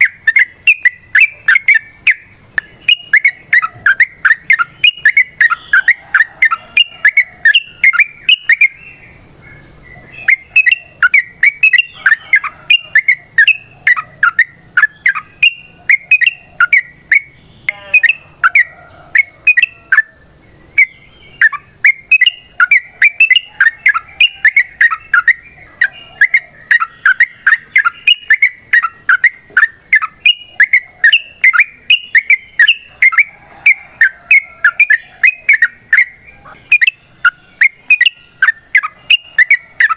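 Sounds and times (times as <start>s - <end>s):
bird singing chattering song: 0.0s - 39.9s.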